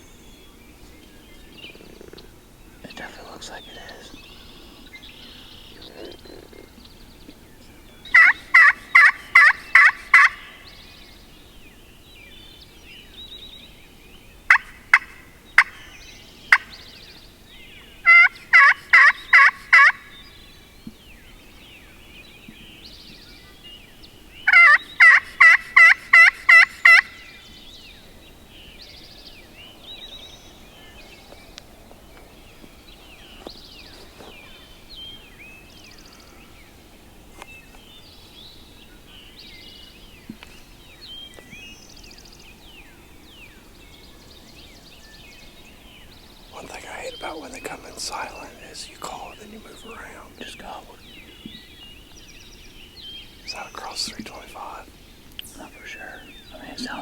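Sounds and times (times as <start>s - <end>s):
turkey call yelps: 8.1s - 10.6s, 18.0s - 20.1s, 24.5s - 27.2s.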